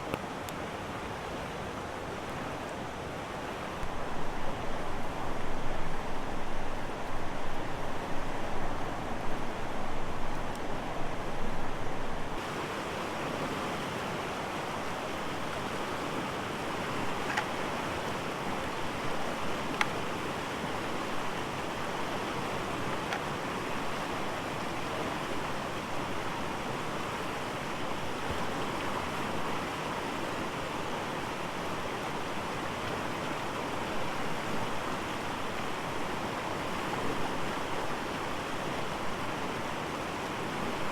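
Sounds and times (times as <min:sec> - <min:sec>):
river water rushing: 0:00.0 - 0:40.9
faint clicks: 0:19.7 - 0:20.0.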